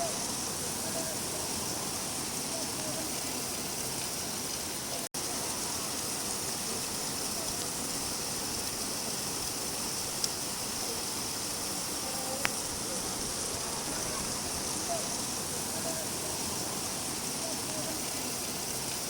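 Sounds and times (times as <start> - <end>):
steady rain falling: 0.0 - 19.0
small sharp ticks: 12.4 - 12.6.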